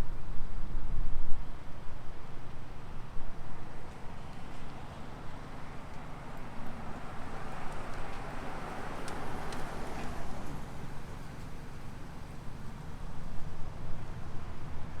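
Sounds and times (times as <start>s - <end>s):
traffic rumble: 2.2s - 15.0s
faint clicks: 9.0s - 10.1s.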